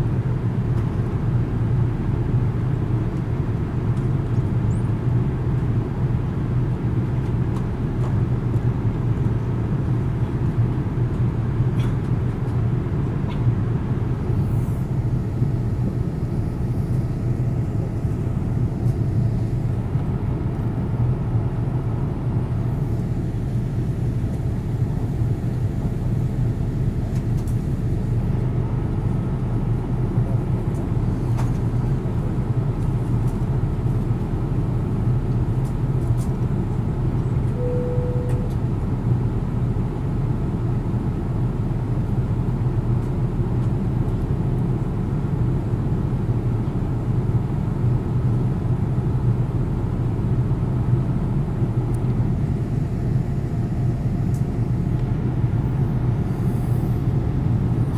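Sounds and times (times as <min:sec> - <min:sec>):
jet engine cabin roar: 0:00.0 - 0:57.9
short single tone: 0:37.5 - 0:38.6.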